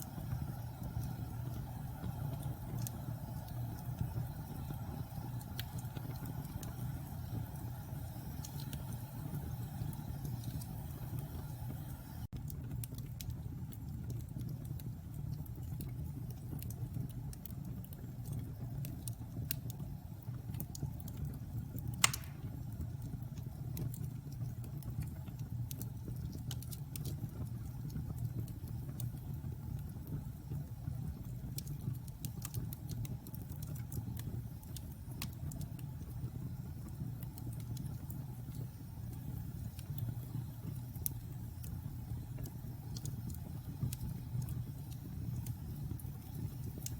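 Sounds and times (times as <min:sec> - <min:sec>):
fire crackling: 0:00.0 - 0:46.9
fire flames rumbling: 0:00.0 - 0:46.9
loud pop from fire: 0:22.0 - 0:22.6.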